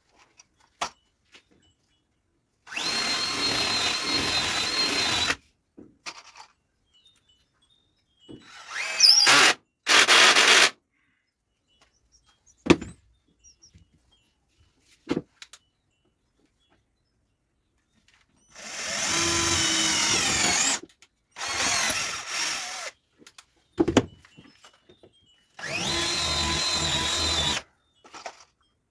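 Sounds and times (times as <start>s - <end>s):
power drill whining: 2.7s - 5.4s, 8.4s - 10.7s, 18.5s - 20.8s, 21.4s - 22.9s, 25.6s - 27.6s.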